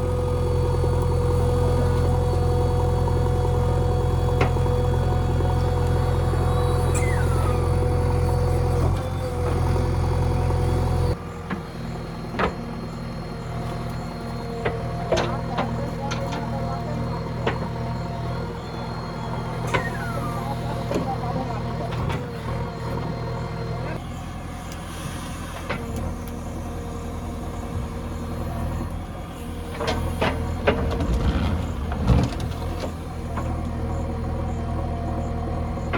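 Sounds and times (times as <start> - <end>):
diesel engine running: 0.0 - 35.9
metal clanks and rattles: 29.8 - 33.6.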